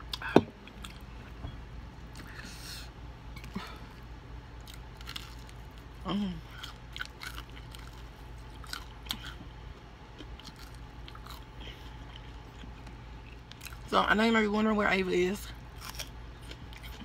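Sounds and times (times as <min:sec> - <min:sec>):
crunching fried chicken: 0:04.6 - 0:13.9, 0:15.6 - 0:17.0.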